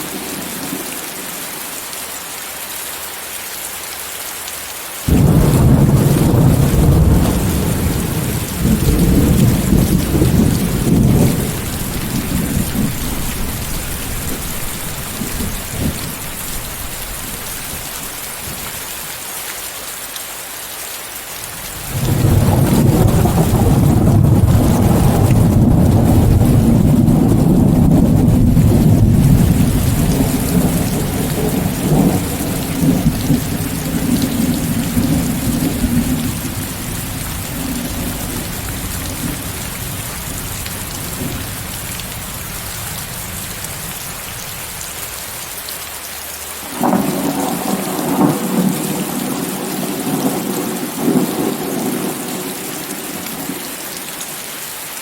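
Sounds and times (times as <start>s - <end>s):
heavy rain: 0.0s - 55.0s
loud thunderclap: 5.1s - 16.6s, 21.9s - 42.2s, 46.8s - 53.2s
rolling thunder: 5.1s - 18.8s, 21.8s - 44.5s, 46.7s - 53.6s.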